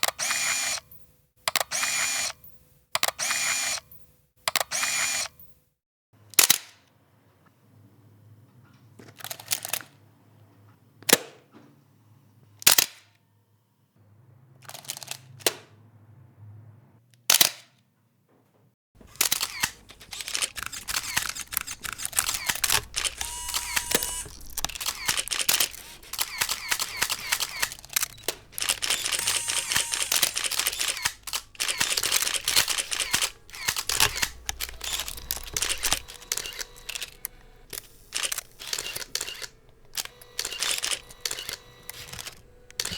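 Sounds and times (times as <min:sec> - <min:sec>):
camera shutters clicking: 0:00.0 - 0:00.8, 0:01.5 - 0:02.4, 0:03.0 - 0:03.8, 0:04.5 - 0:05.3, 0:19.0 - 0:42.9.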